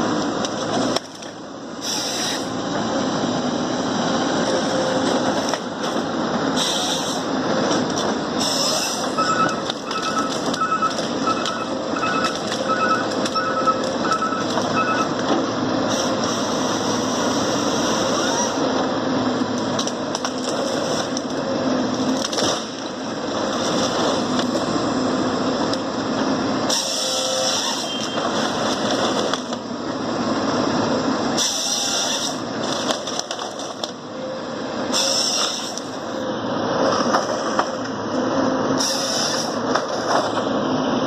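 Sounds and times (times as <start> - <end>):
harvester machine noise: 0.0 - 41.0
double electronic beep: 9.2 - 15.2.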